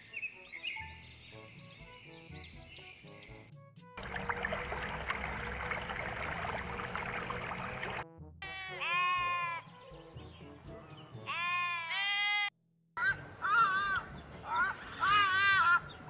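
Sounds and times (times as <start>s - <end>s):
faint background music: 0.0s - 16.0s
sheep bleating: 8.5s - 9.6s.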